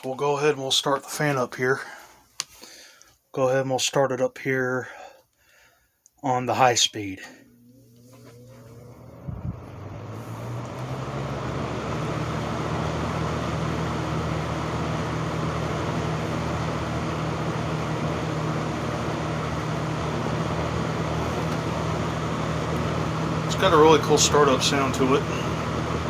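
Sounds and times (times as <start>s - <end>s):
fan air rushing: 7.2s - 26.0s
box fan motor hum: 7.3s - 26.0s.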